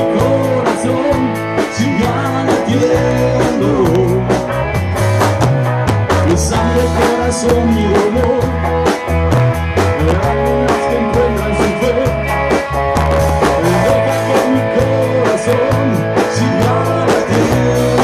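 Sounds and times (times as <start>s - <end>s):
drum kit beat: 0.0s - 18.0s
rock band playing: 0.0s - 18.0s.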